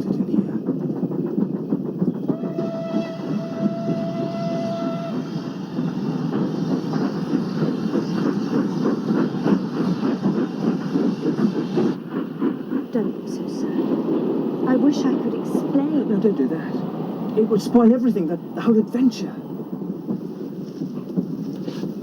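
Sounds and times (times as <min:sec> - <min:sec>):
train wheels clattering on rails: 0:00.0 - 0:22.0
train whistle: 0:02.2 - 0:05.7.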